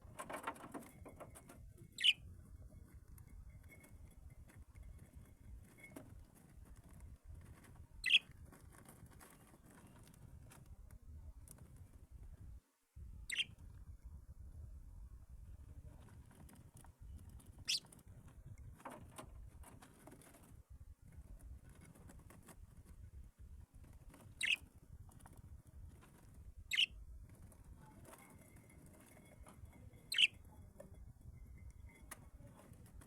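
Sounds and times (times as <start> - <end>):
birds chirping sharply: 2.0 - 2.2.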